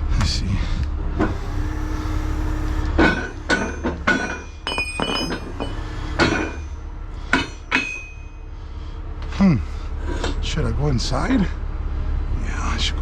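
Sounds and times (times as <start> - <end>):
low steady rumble: 0.0 - 13.0
metal clanks and knocks: 2.9 - 8.4.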